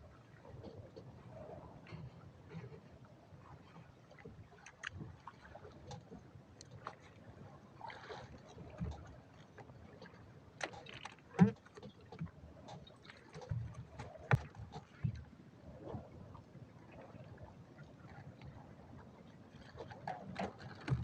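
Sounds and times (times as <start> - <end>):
water lapping: 0.0 - 21.0
gear knocking in a boat: 10.7 - 15.2, 20.0 - 21.0.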